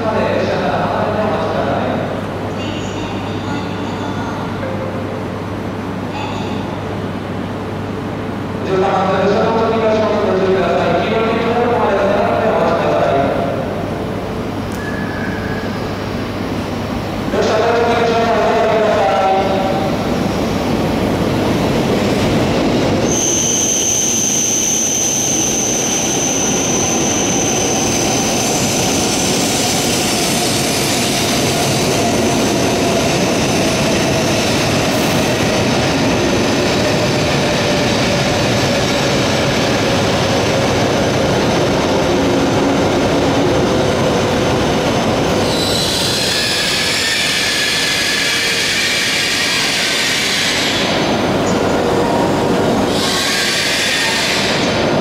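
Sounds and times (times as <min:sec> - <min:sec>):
high-speed train passing: 0:00.0 - 0:55.0
high brake squeals: 0:02.5 - 0:04.3, 0:14.8 - 0:16.0, 0:23.1 - 0:28.5, 0:45.4 - 0:50.9.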